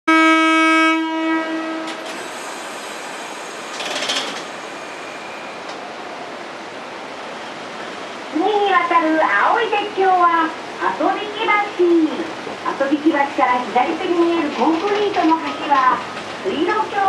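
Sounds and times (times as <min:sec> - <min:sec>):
train horn: 0:00.1 - 0:02.1
train running on track: 0:00.1 - 0:17.0.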